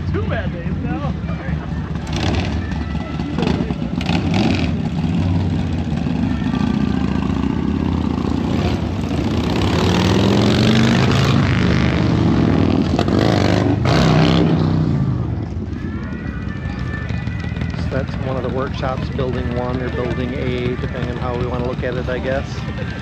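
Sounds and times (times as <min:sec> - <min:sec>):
car engine accelerating: 0:00.0 - 0:15.7.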